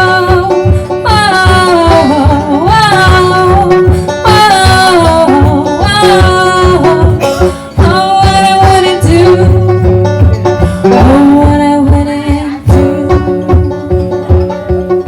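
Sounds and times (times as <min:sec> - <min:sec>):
plucked string accompaniment: 0:00.0 - 0:15.0
steady beat: 0:00.0 - 0:15.0
person singing long held notes: 0:10.6 - 0:14.3.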